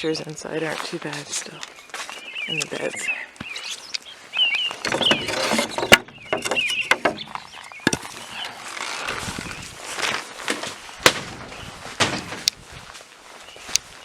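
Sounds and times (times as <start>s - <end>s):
birds chirping: 0.0s - 14.0s
shuffling footsteps: 0.0s - 14.0s.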